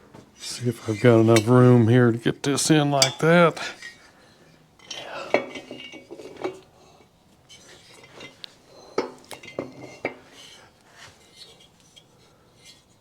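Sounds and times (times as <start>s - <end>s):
metal parts clinking on bench: 4.8s - 6.6s, 7.9s - 10.2s.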